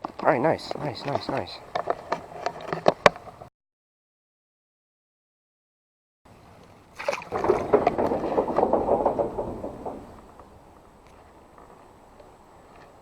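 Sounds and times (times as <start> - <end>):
water splashing and sloshing: 6.3 - 13.0.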